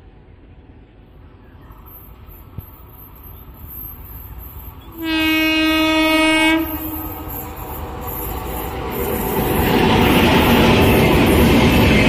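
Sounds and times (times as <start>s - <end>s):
train passing at speed: 0.0s - 12.0s
train horn blast: 4.9s - 7.2s.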